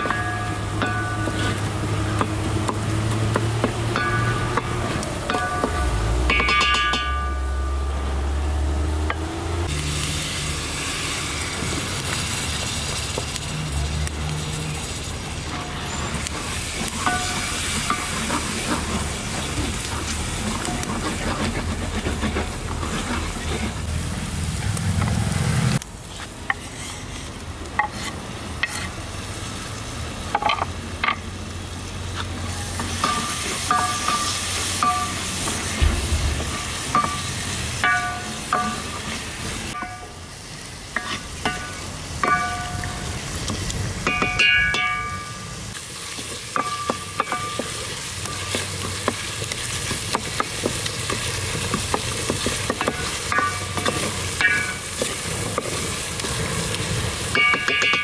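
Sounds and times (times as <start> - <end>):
masala sizzling in oil: 0.0 - 58.0
wooden spatula scraping pot: 1.1 - 2.4, 15.8 - 23.9
low rumble: 35.8 - 37.6.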